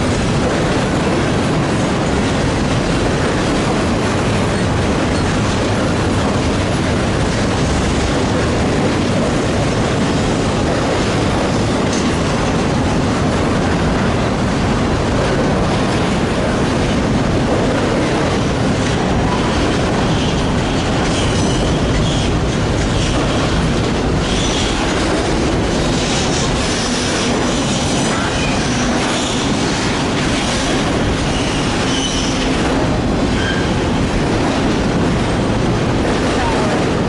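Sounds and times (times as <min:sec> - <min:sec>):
train wheels rumbling on rail: 0:00.0 - 0:37.0
high wheel squeals: 0:31.3 - 0:32.4, 0:33.4 - 0:33.7.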